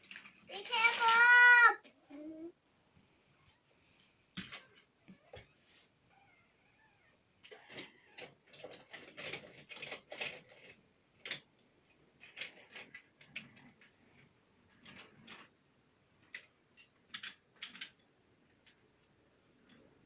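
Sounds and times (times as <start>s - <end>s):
toy trains clicking and clacking: 0.0s - 1.9s, 7.4s - 11.4s, 12.2s - 13.9s, 14.8s - 15.5s, 16.2s - 18.0s.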